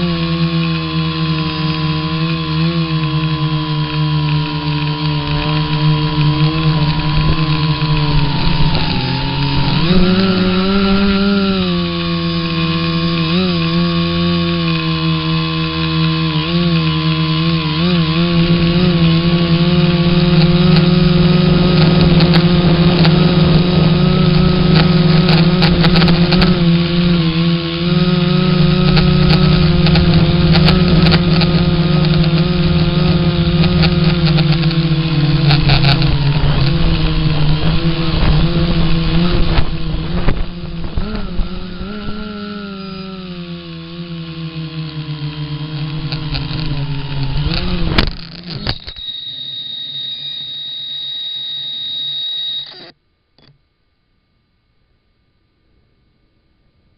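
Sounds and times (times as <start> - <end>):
small engine running: 0.0 - 53.5
sharp clicks: 28.4 - 36.9, 45.7 - 53.6.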